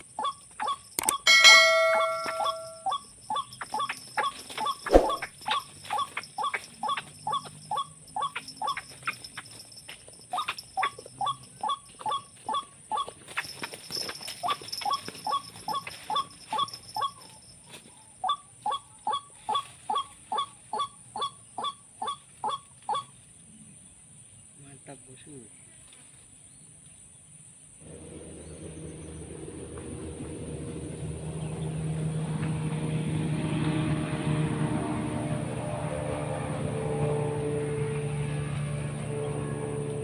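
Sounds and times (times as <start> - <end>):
waterhen calling: 0.0 - 9.2.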